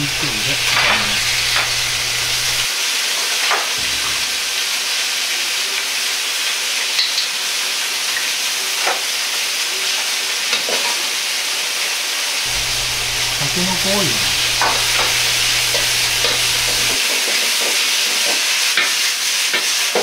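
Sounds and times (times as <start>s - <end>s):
meat sizzling in a wok: 0.0s - 2.7s, 12.5s - 17.0s, 18.8s - 20.0s.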